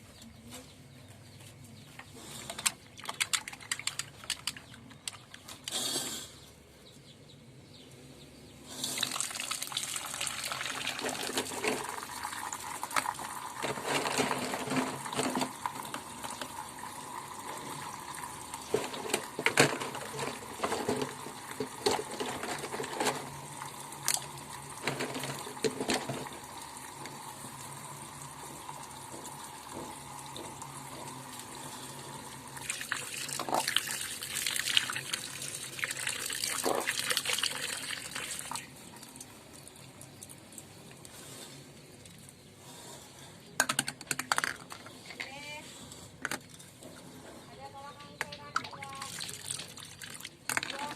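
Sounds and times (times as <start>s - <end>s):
tap water splashing over toys: 9.1s - 16.8s, 17.4s - 31.6s, 32.5s - 38.6s, 48.0s - 50.9s
toys knocking together: 43.6s - 45.0s.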